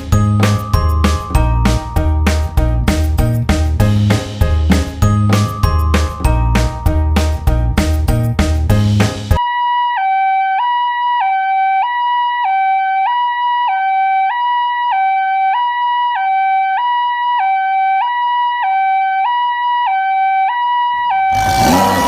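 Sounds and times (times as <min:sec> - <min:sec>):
toy two-tone siren: 0:09.4 - 0:22.0.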